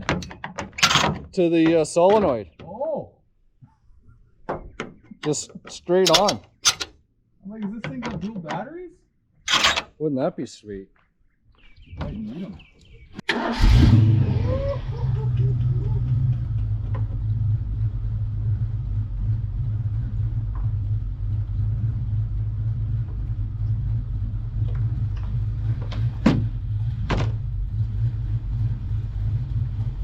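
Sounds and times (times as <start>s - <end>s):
car engine idling with deep rumble: 13.7s - 30.0s.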